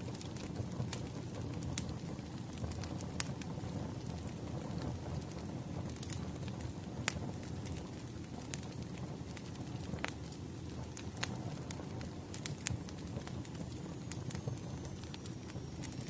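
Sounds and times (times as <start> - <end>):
burning logs rumbling: 0.0 - 16.0
sharp pops from fire: 0.0 - 16.0.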